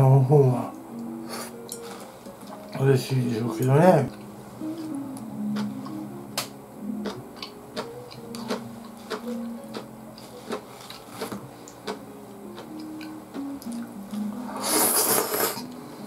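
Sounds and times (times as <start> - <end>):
chewing noodles with mouth clicks: 7.0 - 12.0.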